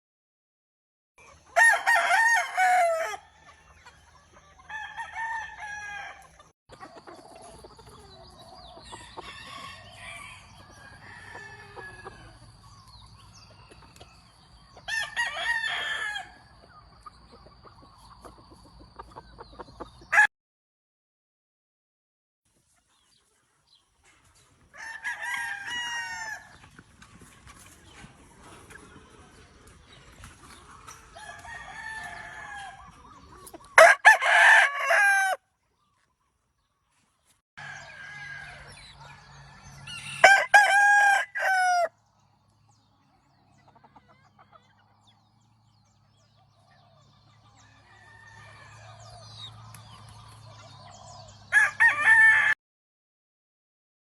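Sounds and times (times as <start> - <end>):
roosters crowing: 1.2 - 6.5, 8.1 - 13.5, 14.8 - 16.6, 20.1 - 20.3, 24.7 - 26.7, 30.9 - 35.5, 37.6 - 42.0, 47.0 - 50.2, 50.8 - 52.6
chickens clucking: 1.2 - 20.2, 22.5 - 25.0, 25.6 - 35.0, 35.6 - 51.6.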